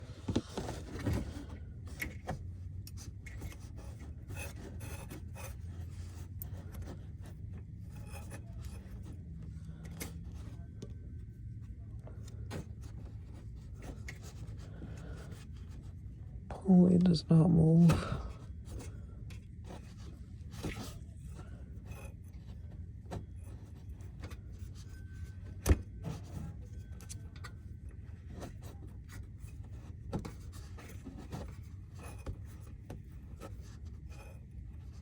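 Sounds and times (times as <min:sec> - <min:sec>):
steady low hum: 0:00.0 - 0:35.0
rubbing and scraping clicks: 0:00.2 - 0:11.0.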